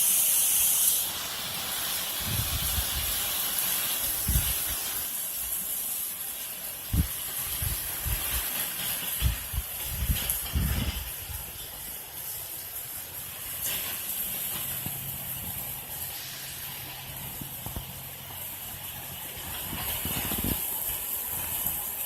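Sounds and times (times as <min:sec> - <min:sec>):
hurricane wind and rain: 0:00.6 - 0:22.0
wind buffeting microphone: 0:02.2 - 0:03.2, 0:04.2 - 0:04.8, 0:06.9 - 0:11.9, 0:18.7 - 0:21.9.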